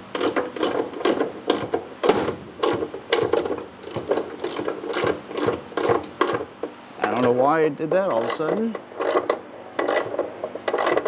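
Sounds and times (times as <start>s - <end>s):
ratchet wrench clicking: 8.2s - 11.0s.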